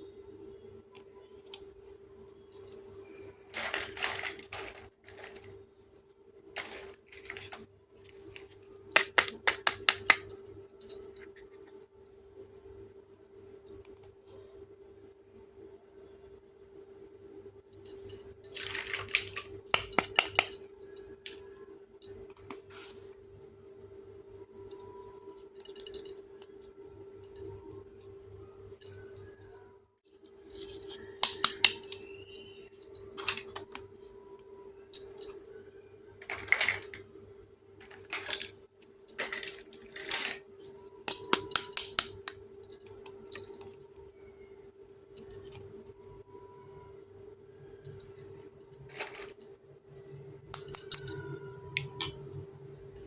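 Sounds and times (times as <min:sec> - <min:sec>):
faint steady hum: 0:00.0 - 0:53.0
toy pieces clicking and clinking: 0:03.5 - 0:05.5, 0:18.4 - 0:20.6, 0:30.5 - 0:33.8, 0:41.0 - 0:43.7.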